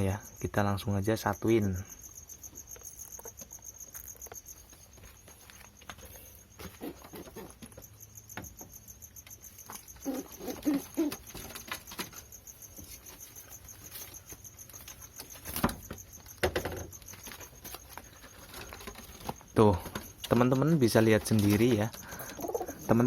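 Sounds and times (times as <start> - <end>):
pigeon cooing: 10.0 - 12.0, 21.5 - 23.0.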